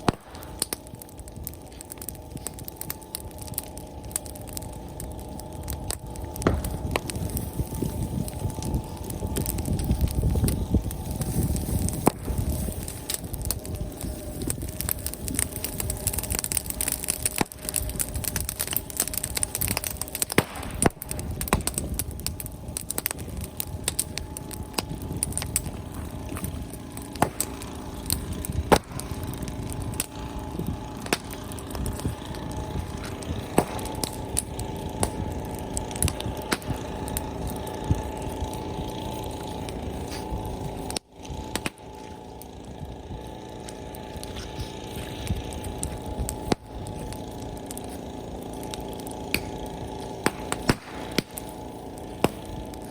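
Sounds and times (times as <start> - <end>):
bonfire crackling and popping: 0.0 - 52.9.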